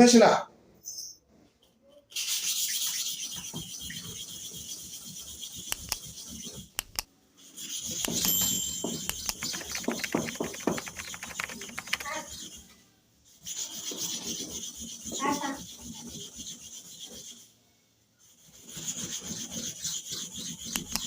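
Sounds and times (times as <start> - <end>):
blade grinding on sharpening stone: 5.5 - 7.0
clicks: 5.7 - 6.0, 6.8 - 7.1, 8.0 - 12.1, 20.7 - 21.0.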